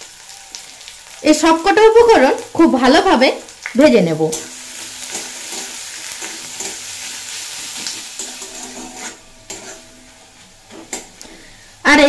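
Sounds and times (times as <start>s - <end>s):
vegetables sizzling in hot oil: 0.0s - 12.0s
metal spatula stirring: 4.3s - 11.4s.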